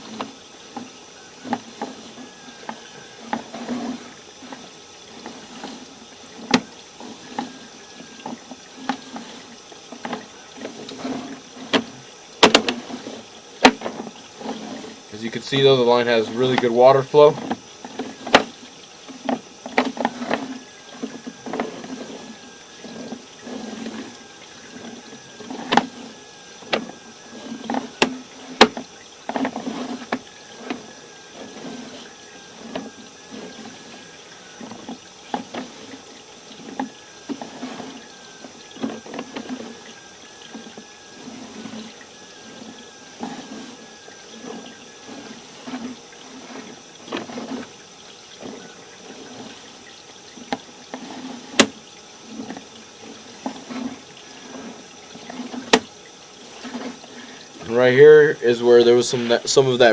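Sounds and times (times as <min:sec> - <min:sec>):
water gurgling through sewer pipe: 0:00.0 - 0:59.9.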